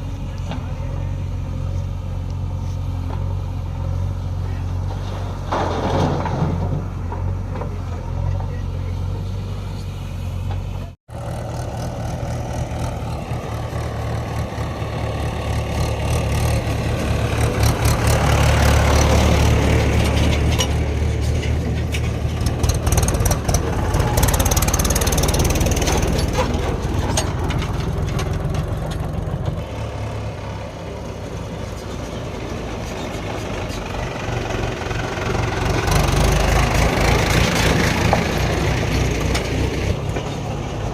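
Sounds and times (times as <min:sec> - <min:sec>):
heavy diesel engine working: 0:00.0 - 0:40.9
metal clanks and clatter: 0:04.8 - 0:08.5, 0:17.4 - 0:29.6.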